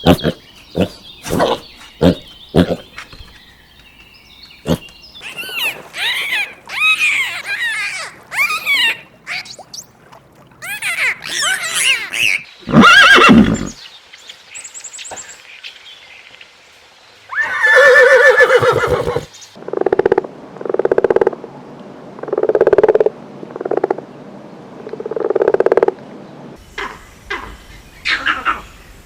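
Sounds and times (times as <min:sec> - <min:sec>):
horse whinnying: 0:11.2 - 0:13.8, 0:17.3 - 0:19.3.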